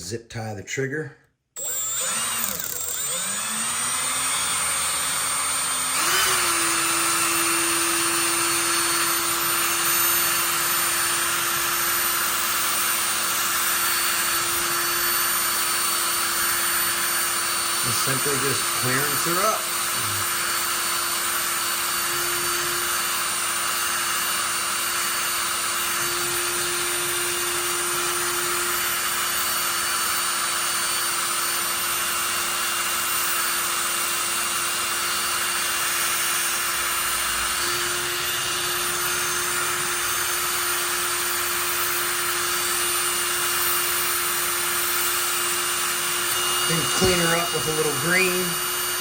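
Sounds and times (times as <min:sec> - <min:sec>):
electric drill motor whine: 0:01.6 - 0:49.0.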